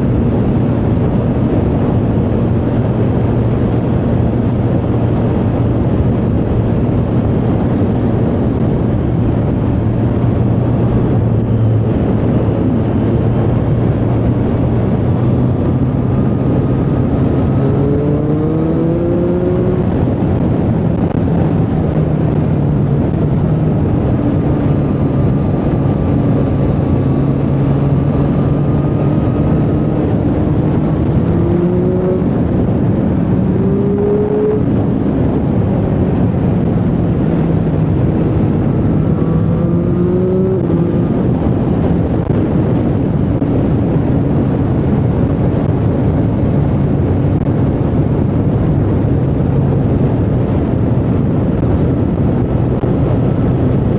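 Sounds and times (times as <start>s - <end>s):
motorcycle engine revving: 8.2s - 42.6s.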